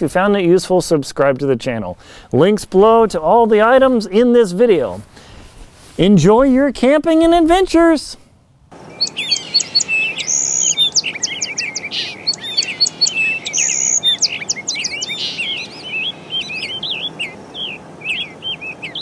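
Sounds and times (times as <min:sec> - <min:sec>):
faint background noise: 0:00.0 - 0:19.0
small birds chirping and singing: 0:08.8 - 0:19.0.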